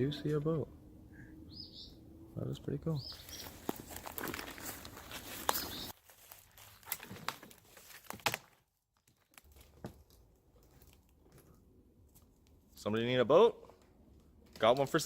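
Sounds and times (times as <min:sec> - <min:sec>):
dry debris crunching underfoot: 0:03.2 - 0:12.4.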